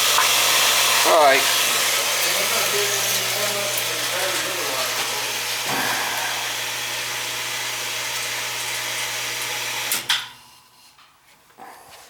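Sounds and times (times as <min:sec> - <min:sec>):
water rushing: 0:00.0 - 0:08.0
well pump humming: 0:00.0 - 0:10.2.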